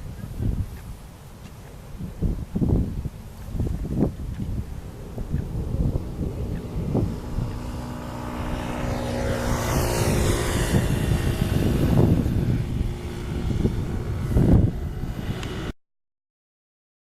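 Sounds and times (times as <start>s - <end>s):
wind on microphone: 0.0s - 15.8s
jet engines droning: 3.1s - 15.8s.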